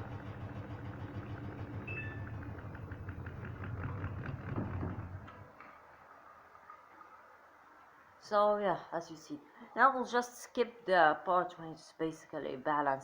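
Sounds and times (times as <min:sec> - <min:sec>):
rapid knocking of unbalanced load: 0:02.4 - 0:05.4.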